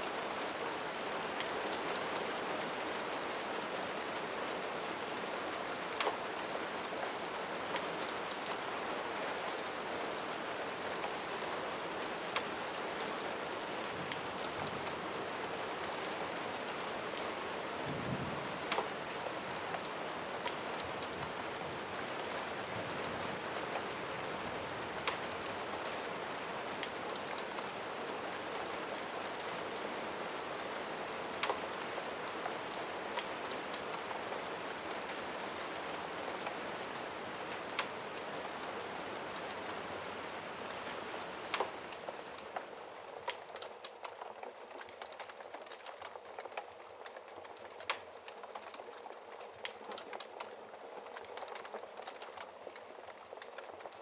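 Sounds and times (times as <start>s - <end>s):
rain falling on a surface: 0.0s - 54.0s.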